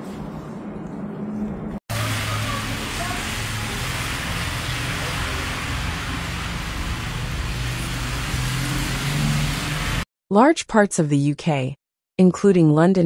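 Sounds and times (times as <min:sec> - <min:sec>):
traffic hiss: 0:01.9 - 0:10.0
vehicle engine humming: 0:01.9 - 0:10.0.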